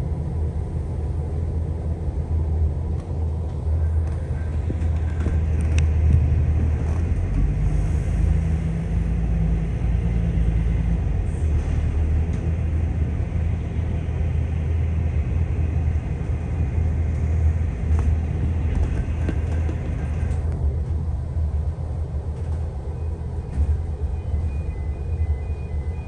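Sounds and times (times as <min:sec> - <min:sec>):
diesel railcar rumble and drone: 0:00.0 - 0:26.0.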